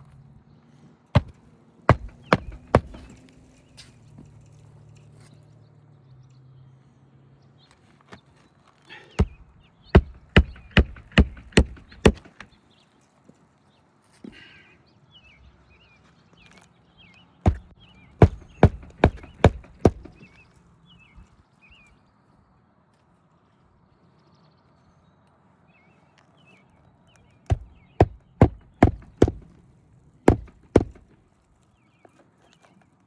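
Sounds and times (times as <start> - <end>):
hammer driving nails: 1.2 - 3.2, 10.0 - 12.5, 17.5 - 20.3, 27.5 - 29.6, 30.3 - 31.2.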